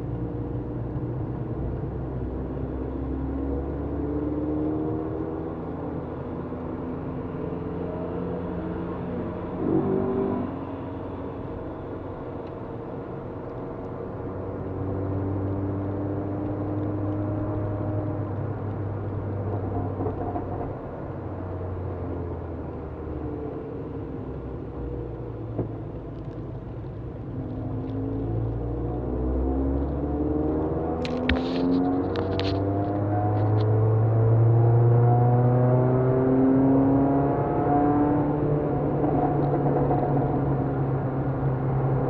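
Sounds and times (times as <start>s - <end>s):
tyre and road noise on wet track: 16.4s - 34.4s.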